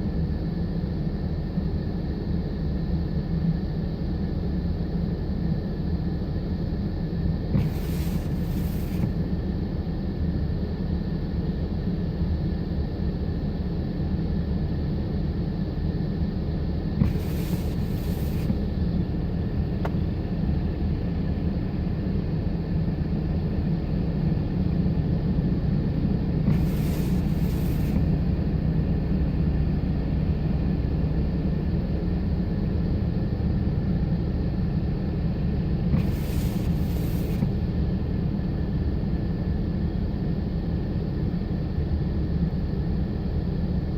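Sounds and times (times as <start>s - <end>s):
brief double hiss: 7.5s - 9.4s, 17.0s - 18.8s, 26.5s - 28.2s, 35.9s - 37.7s.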